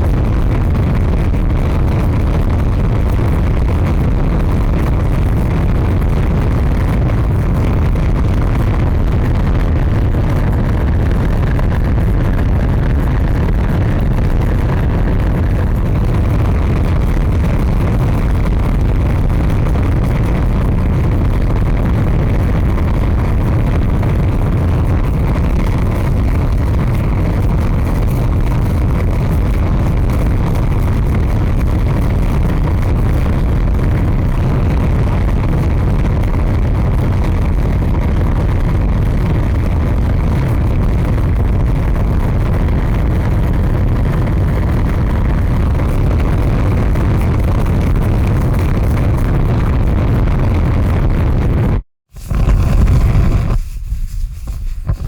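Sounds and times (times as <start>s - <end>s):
large fire rumbling: 0.0s - 55.0s.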